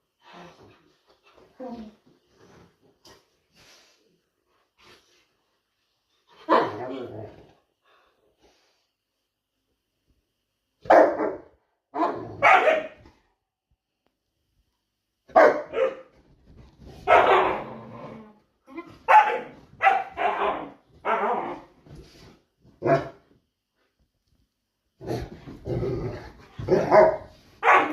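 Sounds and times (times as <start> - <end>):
dog barking: 10.8 - 13.0, 15.3 - 16.1, 17.1 - 17.6, 19.1 - 21.5, 26.7 - 27.9.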